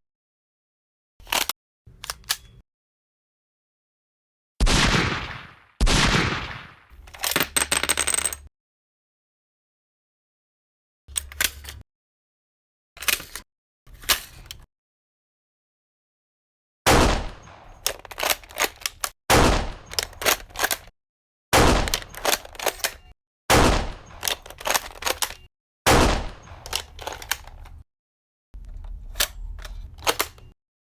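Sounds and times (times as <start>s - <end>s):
loud gunshots: 4.6s - 6.8s, 16.9s - 17.6s, 19.3s - 19.9s, 21.6s - 22.1s, 23.5s - 24.2s, 25.9s - 26.6s.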